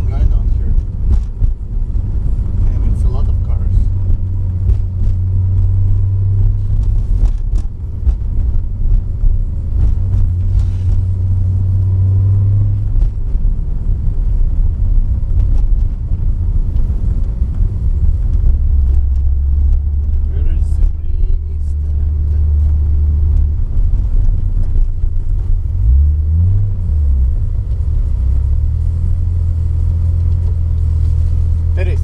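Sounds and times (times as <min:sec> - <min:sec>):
car engine droning: 0:00.0 - 0:32.0
road rumble: 0:00.0 - 0:32.0.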